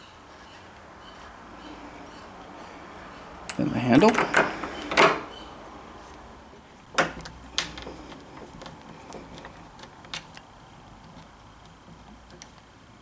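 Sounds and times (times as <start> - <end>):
door handle hardware clicks and knocks: 3.5 - 5.3, 7.0 - 7.9.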